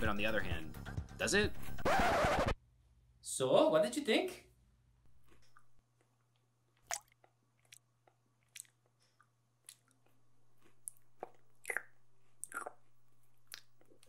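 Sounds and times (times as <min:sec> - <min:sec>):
person chewing crunchy food: 0:05.1 - 0:05.8, 0:06.9 - 0:14.0
mouth clicks: 0:10.8 - 0:12.8.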